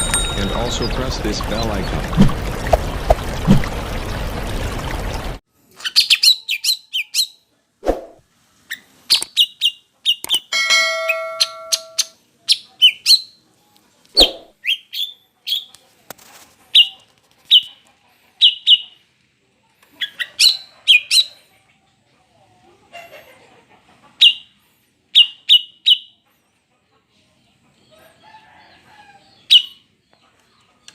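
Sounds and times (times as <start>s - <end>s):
bird chirping: 0.0s - 3.6s
steady pitched tone: 10.6s - 12.1s.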